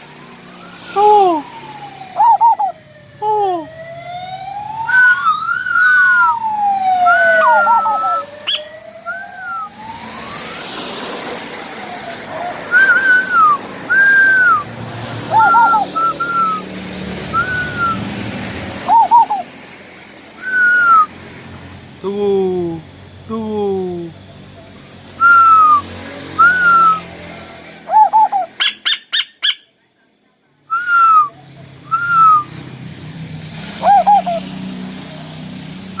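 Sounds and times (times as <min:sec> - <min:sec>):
koel whistled calls: 0:00.0 - 0:02.8, 0:04.9 - 0:10.4, 0:12.3 - 0:18.1, 0:18.8 - 0:19.5, 0:20.4 - 0:21.2, 0:25.1 - 0:27.1, 0:27.8 - 0:29.8, 0:30.7 - 0:32.6, 0:33.7 - 0:34.8
siren-like wail: 0:00.0 - 0:29.6, 0:30.7 - 0:36.0
rush of noise: 0:04.8 - 0:28.6.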